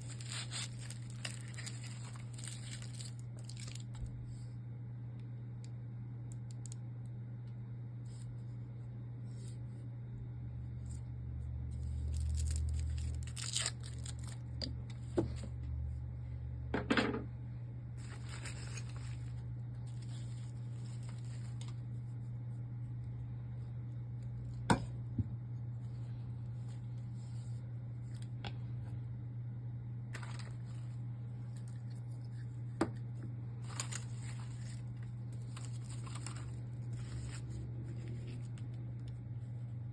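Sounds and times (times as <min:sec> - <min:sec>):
packaging rustling and tearing: 0:00.0 - 0:04.1, 0:11.8 - 0:14.4, 0:18.0 - 0:21.8, 0:30.1 - 0:32.0, 0:33.6 - 0:39.1
steady low hum: 0:00.0 - 0:39.9.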